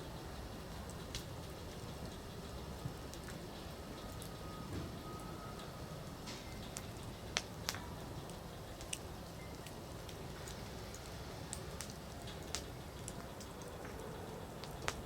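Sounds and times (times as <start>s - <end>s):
fire crackling and popping: 0.2s - 15.0s
campfire flame rush: 6.0s - 15.0s.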